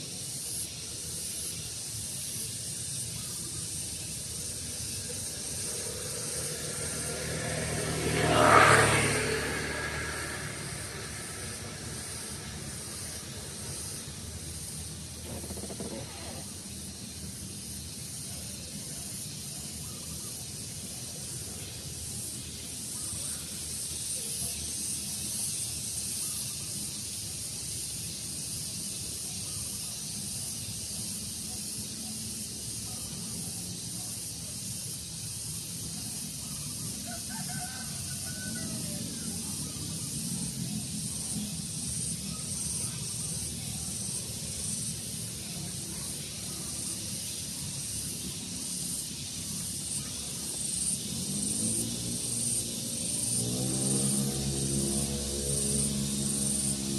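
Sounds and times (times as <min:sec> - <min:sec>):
breeze hiss: 0:00.0 - 0:56.9
faint calls: 0:02.8 - 0:17.0.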